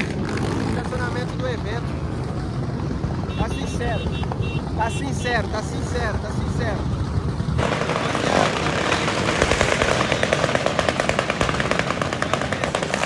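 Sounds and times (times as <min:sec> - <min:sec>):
small motorcycle engine running hard: 0:00.0 - 0:03.4, 0:06.8 - 0:13.0.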